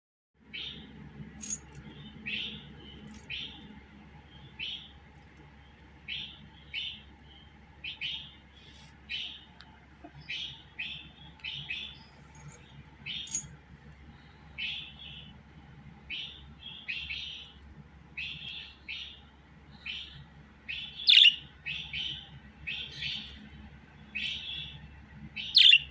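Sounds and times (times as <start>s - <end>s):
faint low hum: 0.4s - 25.9s
budgerigar chirping: 19.8s - 23.4s, 25.4s - 25.9s.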